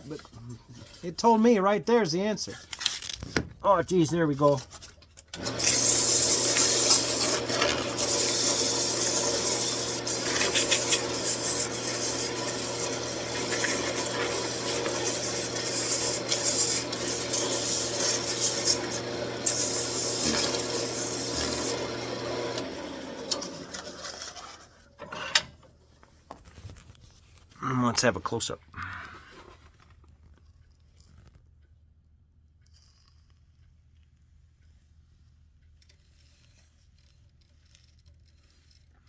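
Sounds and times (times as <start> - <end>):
lathe motor hum: 5.4 - 24.6
turning tool rasping on wood: 5.5 - 24.6.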